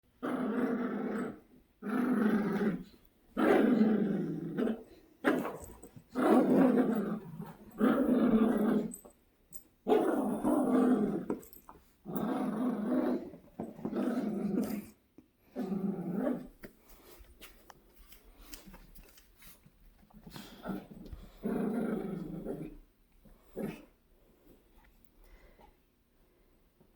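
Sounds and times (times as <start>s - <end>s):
dogs growling and snarling: 0.2s - 9.1s, 9.9s - 16.6s, 20.3s - 22.8s, 23.4s - 24.0s.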